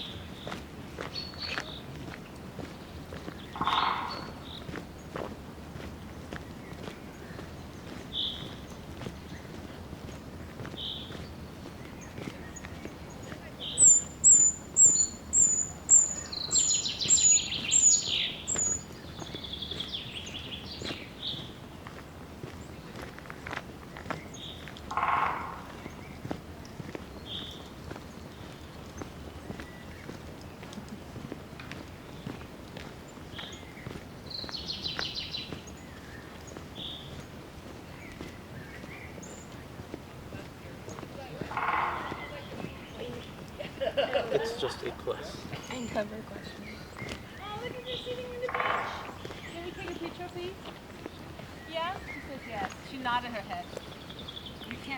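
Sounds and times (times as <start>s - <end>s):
bird singing falling run: 0.0s - 5.4s, 6.0s - 54.9s
faint footsteps: 0.0s - 54.9s
bird trill: 3.4s - 4.8s, 13.2s - 20.9s, 24.3s - 26.2s, 41.4s - 43.4s, 46.7s - 50.7s
bird repeating high note: 3.6s - 4.4s
outdoor background hiss: 42.2s - 54.9s.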